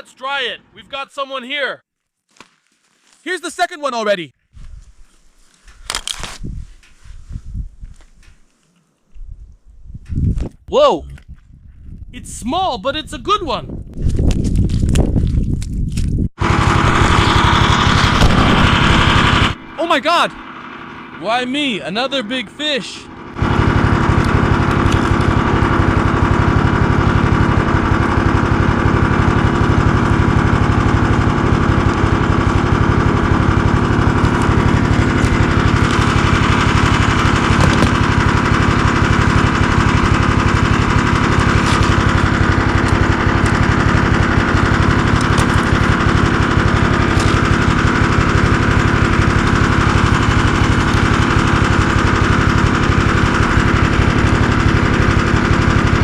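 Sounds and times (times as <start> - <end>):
snowmobile engine running: 16.4 - 56.0.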